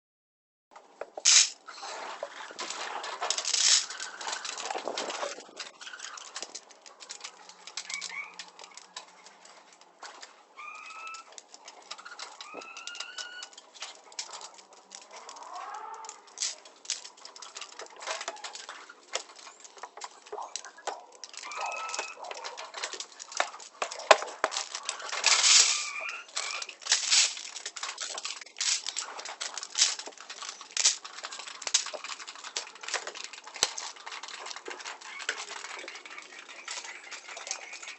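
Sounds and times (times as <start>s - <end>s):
chicken calls: 7.0s - 9.4s, 10.4s - 13.6s, 15.0s - 16.4s, 17.8s - 24.1s, 34.7s - 37.9s.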